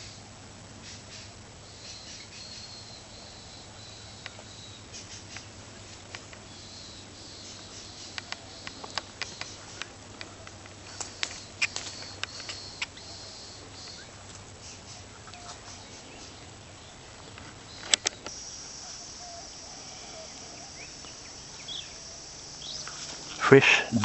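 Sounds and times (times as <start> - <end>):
faint bird calls: 0.0 - 24.0
sharp clicks: 8.0 - 13.0, 17.4 - 18.4
high-pitched insect drone: 18.3 - 24.0.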